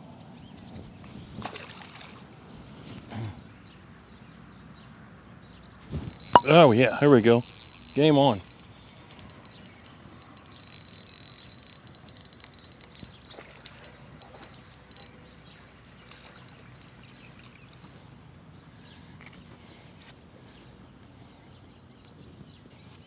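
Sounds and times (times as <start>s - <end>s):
faint outdoor background: 0.0s - 23.0s
rapid light ticks: 6.0s - 17.5s.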